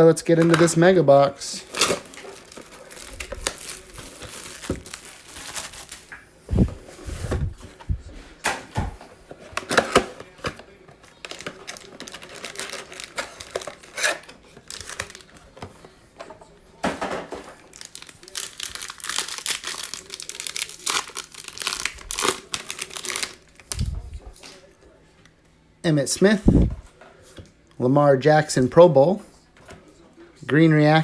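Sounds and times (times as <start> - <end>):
plastic wrapping crinkling: 1.5 - 6.7, 9.6 - 15.6, 17.5 - 24.5.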